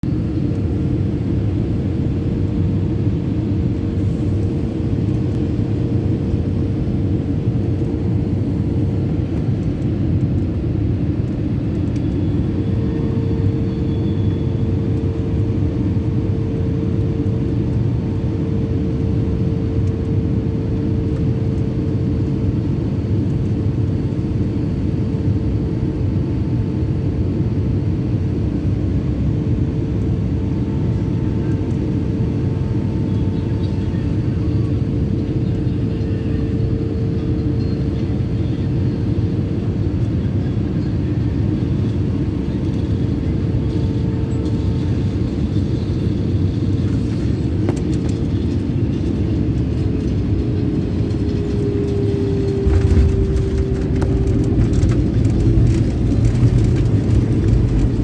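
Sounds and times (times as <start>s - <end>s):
airliner engines rumbling: 0.0s - 58.0s.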